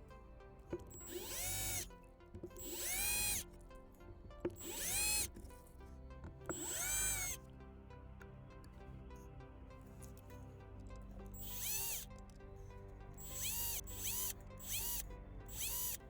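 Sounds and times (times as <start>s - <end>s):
background music: 0.0s - 16.0s
power drill drilling: 0.8s - 1.9s, 2.6s - 3.4s, 4.5s - 5.3s, 6.5s - 7.4s, 11.4s - 12.0s, 13.2s - 16.0s.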